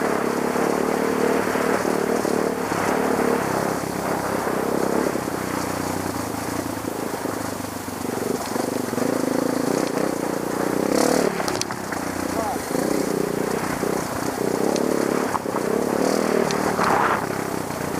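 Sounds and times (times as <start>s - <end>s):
dirt bike engine revving: 0.0s - 17.9s.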